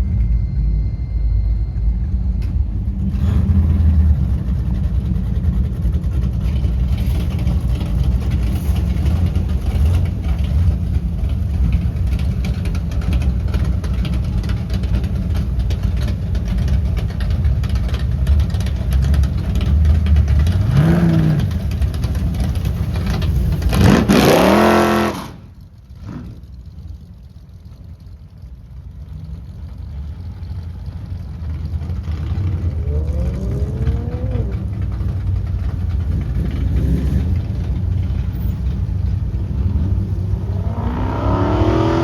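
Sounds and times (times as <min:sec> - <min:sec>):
car engine revving and accelerating: 0:03.0 - 0:15.0, 0:18.4 - 0:26.5, 0:31.4 - 0:42.0.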